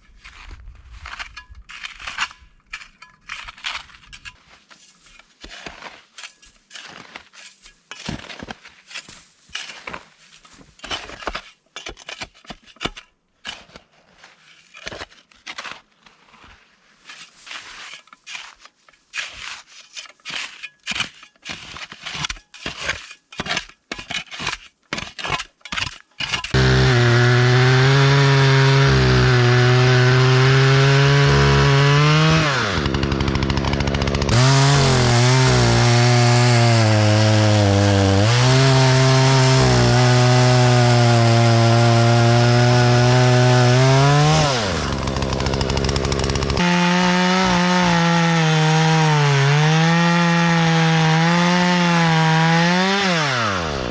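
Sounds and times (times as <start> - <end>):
chainsaw running at high revs: 26.5 - 53.9.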